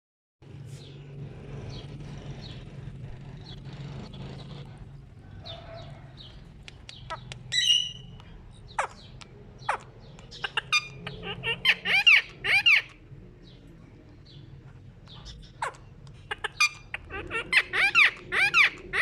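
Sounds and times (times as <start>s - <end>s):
parakeet chirping: 5.5s - 13.0s, 15.1s - 19.0s
sharp clicks: 6.6s - 7.5s
parakeet squawk: 7.0s - 13.0s, 15.2s - 19.0s.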